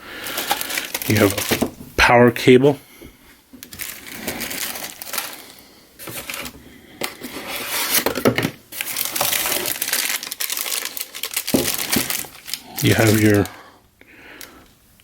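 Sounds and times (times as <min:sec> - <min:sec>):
plastic packaging crinkling: 0:00.0 - 0:01.8, 0:03.6 - 0:13.6.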